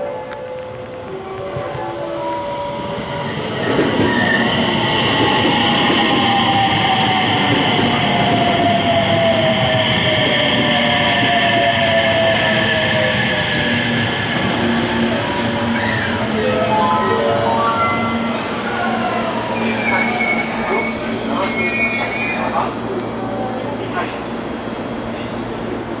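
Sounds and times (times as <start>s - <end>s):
electric train running: 2.8s - 21.5s.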